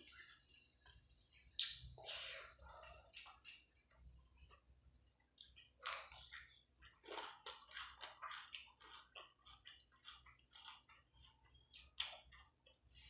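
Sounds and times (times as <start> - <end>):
chewing clicks: 5.4 - 12.8.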